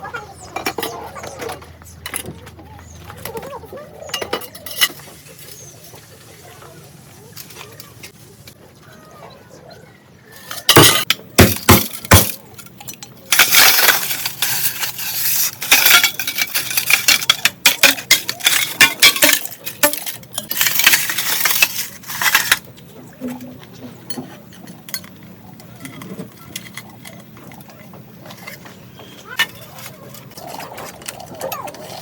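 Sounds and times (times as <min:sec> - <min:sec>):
glass clinking and crunching: 0:04.0 - 0:05.6, 0:10.5 - 0:32.0.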